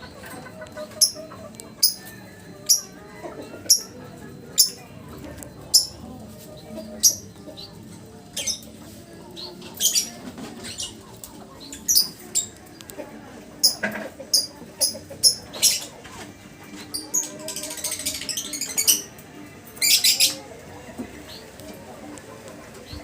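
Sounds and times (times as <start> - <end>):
lovebird chirps: 2.6 - 3.0, 3.7 - 4.8, 5.7 - 6.1.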